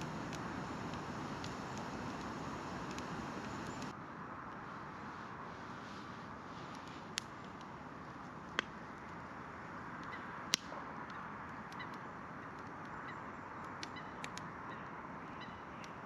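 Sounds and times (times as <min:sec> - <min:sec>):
sharp pops of fire: 0:00.0 - 0:04.0, 0:06.6 - 0:09.2, 0:10.0 - 0:12.8
campfire crackling and hissing: 0:00.0 - 0:16.0.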